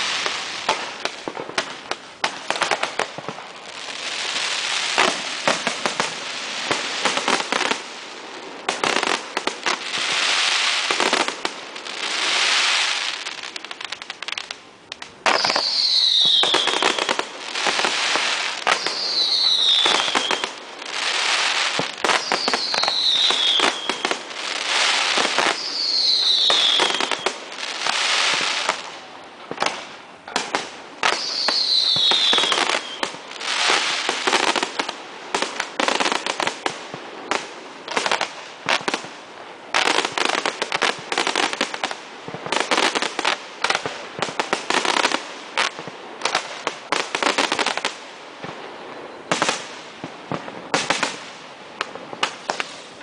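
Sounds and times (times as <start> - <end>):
sharp crackling cracks: 0.0 - 48.7, 49.3 - 53.0
fireworks crackling and hissing: 0.0 - 53.0
falling firework whistles: 15.2 - 28.8, 31.0 - 34.6.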